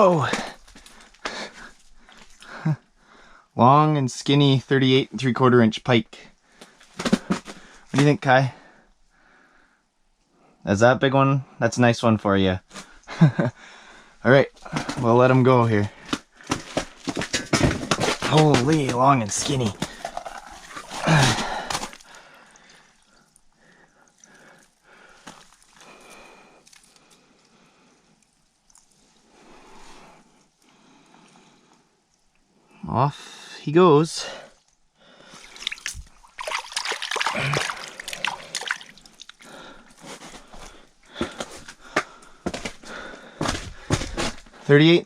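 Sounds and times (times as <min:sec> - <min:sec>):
water splashing and sloshing: 0:15.9 - 0:30.4, 0:35.1 - 0:44.4
breathy exclamation: 0:19.7 - 0:25.2, 0:37.1 - 0:39.9.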